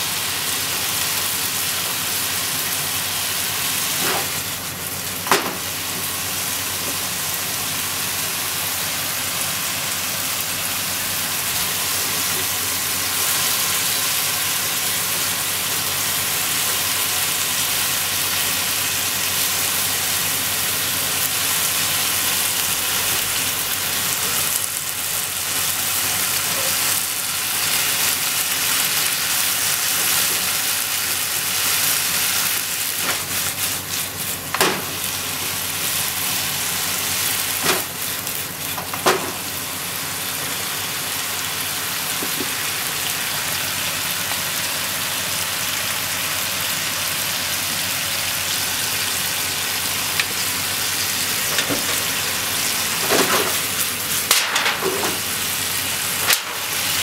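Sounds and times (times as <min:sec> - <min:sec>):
vegetables sizzling in pan: 0:00.0 - 0:57.0.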